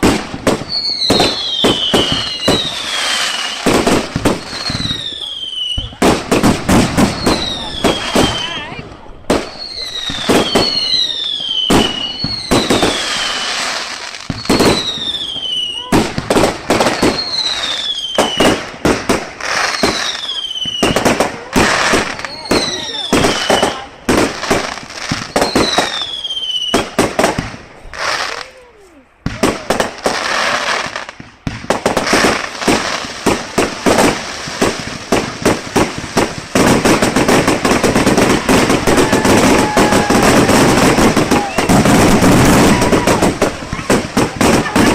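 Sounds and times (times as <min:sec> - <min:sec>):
fireworks bangs: 0:00.0 - 0:44.9
fireworks whistles sliding down: 0:00.6 - 0:06.0, 0:25.1 - 0:26.9, 0:37.7 - 0:43.9.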